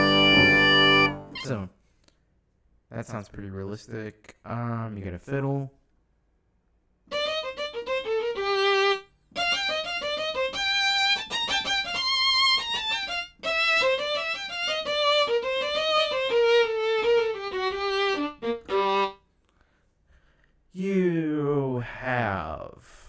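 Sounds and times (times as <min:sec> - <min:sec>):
fiddle melody with quick runs: 0:00.0 - 0:01.6, 0:07.1 - 0:19.2.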